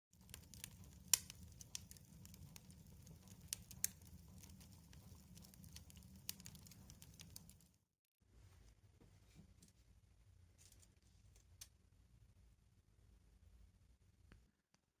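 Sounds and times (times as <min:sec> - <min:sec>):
faint sharp ticks and crackles: 0:00.2 - 0:07.8.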